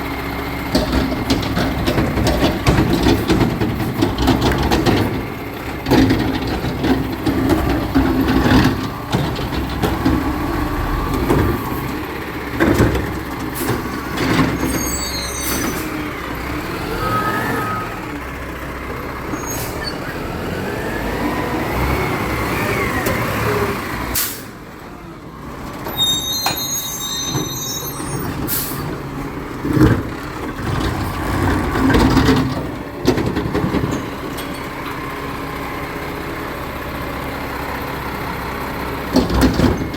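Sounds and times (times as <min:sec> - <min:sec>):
truck engine running: 0:00.0 - 0:17.0
loud clunks and knocks: 0:00.7 - 0:14.8, 0:29.6 - 0:34.6, 0:39.1 - 0:39.9
high squeals: 0:14.5 - 0:16.0, 0:16.9 - 0:18.2, 0:25.9 - 0:28.4.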